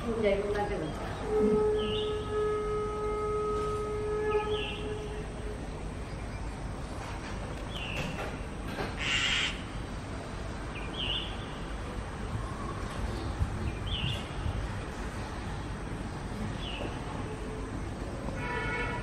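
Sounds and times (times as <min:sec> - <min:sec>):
bird chirping: 0:01.8 - 0:02.2, 0:10.7 - 0:11.6
harsh bird call: 0:09.0 - 0:09.7.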